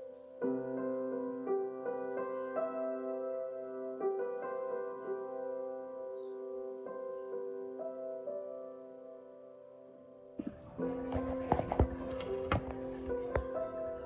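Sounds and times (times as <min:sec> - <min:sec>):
soft slow piano melody: 0:00.0 - 0:14.0.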